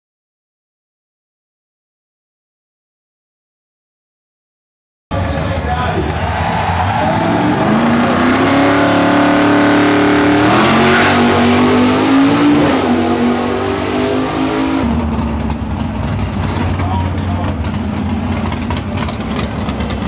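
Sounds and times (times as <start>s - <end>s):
drag car engine revving: 5.1s - 20.0s.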